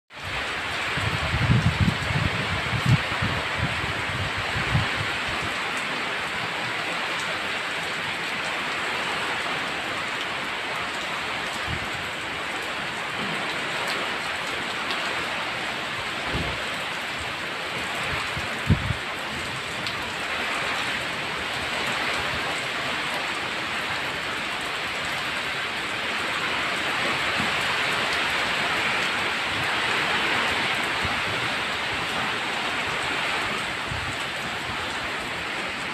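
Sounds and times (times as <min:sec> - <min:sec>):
heavy rain pouring: 0:00.1 - 0:35.9.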